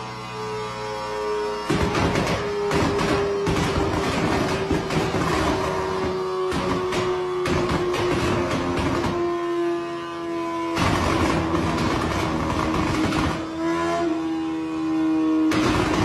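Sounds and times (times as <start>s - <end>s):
motorcycle engine revving: 10.8s - 14.2s.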